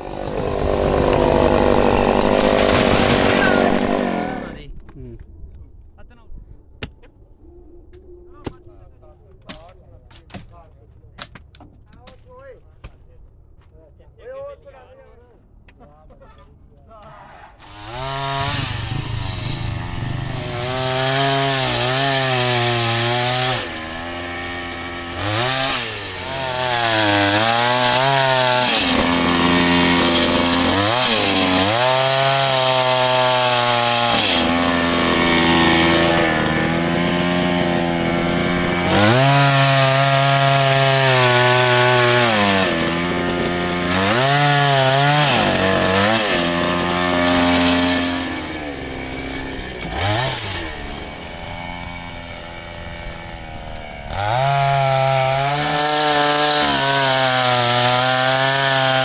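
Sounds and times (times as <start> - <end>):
chainsaw cutting wood: 0.0 - 4.6, 17.6 - 59.0.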